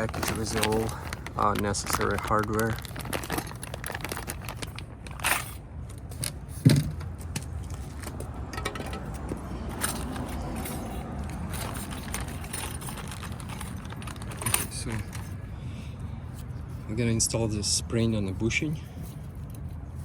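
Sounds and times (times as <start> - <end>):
small metal parts clinking: 0.0 - 6.4, 7.6 - 15.4.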